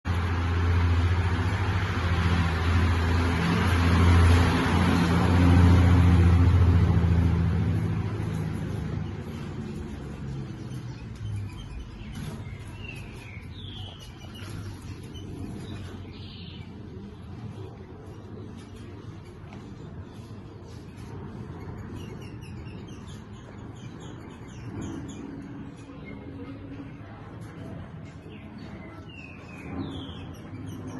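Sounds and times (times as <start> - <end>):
vehicle engine humming: 0.0 - 29.0
bird chirps: 8.3 - 17.0, 20.2 - 26.2.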